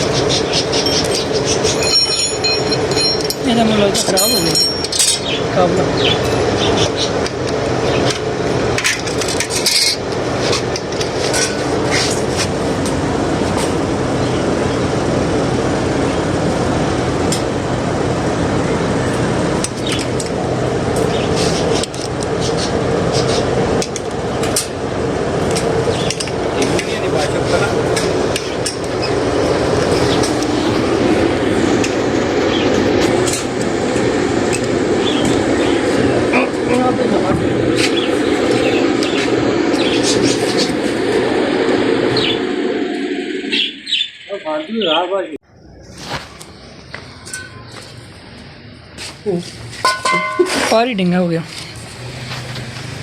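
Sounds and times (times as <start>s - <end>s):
steady low hum: 0.0s - 53.0s
hand tools tapping metal: 0.7s - 5.4s, 49.8s - 50.9s.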